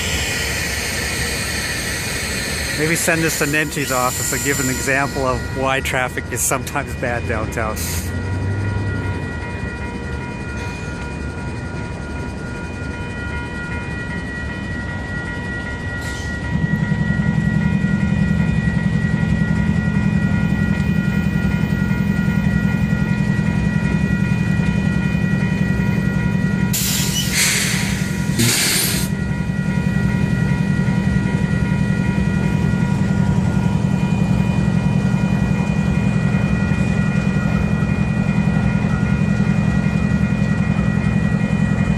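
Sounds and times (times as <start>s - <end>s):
crossing warning bell ringing: 0.0s - 41.9s
diesel train engine drone: 0.0s - 41.9s
loud hissing blasts: 28.4s - 29.1s.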